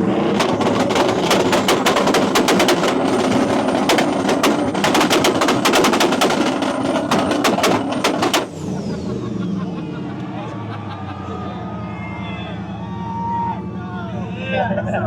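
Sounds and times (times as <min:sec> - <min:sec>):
exhaust pops and bangs: 0:00.0 - 0:08.6
engine held at high revs: 0:00.0 - 0:10.6.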